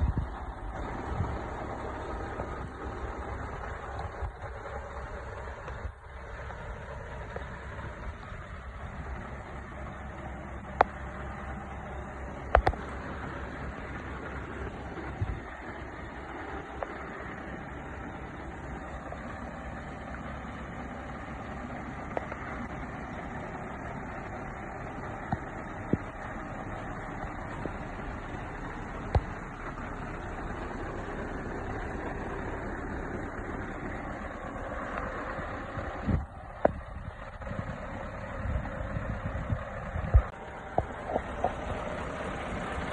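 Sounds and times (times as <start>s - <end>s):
truck diesel engine running: 0.0s - 42.9s
sharp clicks and knocks: 12.4s - 15.6s.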